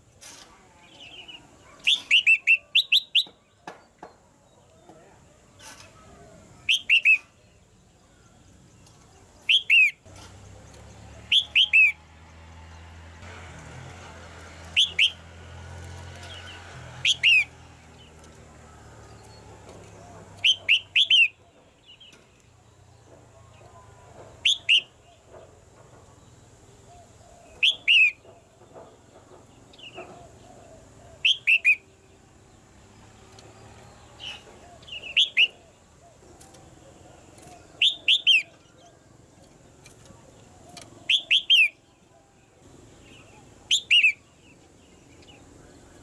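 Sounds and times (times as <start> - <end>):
bulbul song: 1.0 - 3.6, 6.6 - 7.6, 9.2 - 10.1, 11.2 - 12.1, 14.6 - 15.3, 17.0 - 18.4, 19.0 - 25.3, 26.6 - 28.6, 29.8 - 32.5, 34.1 - 36.8, 37.4 - 38.8, 40.7 - 42.0, 42.9 - 46.0.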